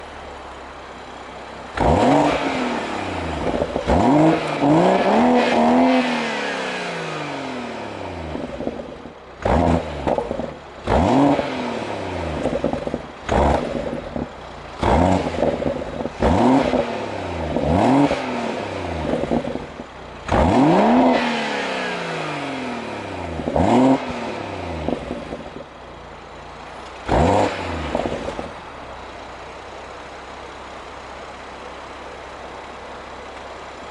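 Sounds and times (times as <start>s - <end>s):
car engine revving: 1.4s - 28.9s
exhaust pops and crackles: 3.4s - 4.6s, 8.4s - 11.4s, 12.3s - 16.8s, 26.7s - 28.7s.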